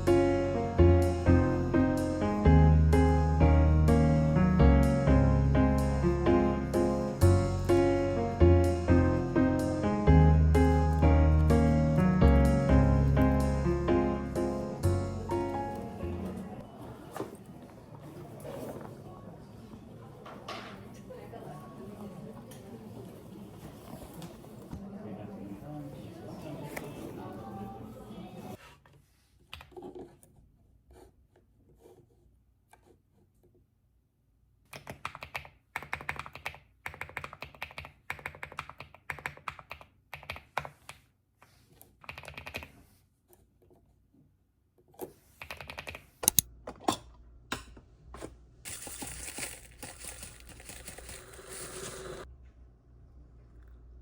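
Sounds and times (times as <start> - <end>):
typing on keyboard: 34.7 - 41.0, 42.0 - 42.7, 45.4 - 46.0.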